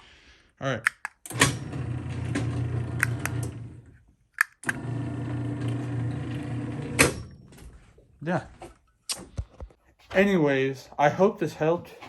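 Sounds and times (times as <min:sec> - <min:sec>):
garage door opener motor humming: 0:01.3 - 0:03.9, 0:04.6 - 0:07.5.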